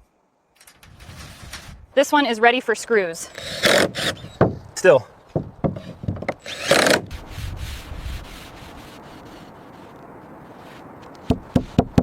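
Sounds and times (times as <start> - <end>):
wood scraping: 0.6 - 2.2, 3.3 - 12.0
wood rubbing: 3.3 - 12.0.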